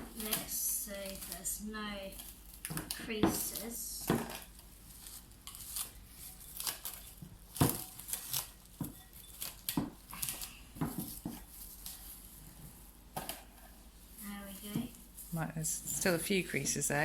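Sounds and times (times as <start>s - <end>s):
cling film crackling: 0.0s - 12.3s.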